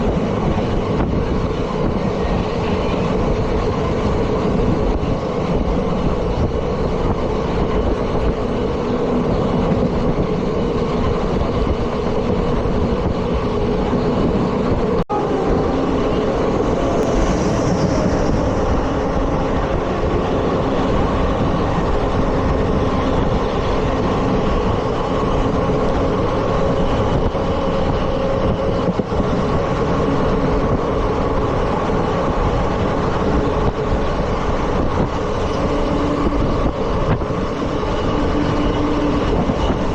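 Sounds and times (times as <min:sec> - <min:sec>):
train wheels rumbling and rattling: 0:00.0 - 0:39.9.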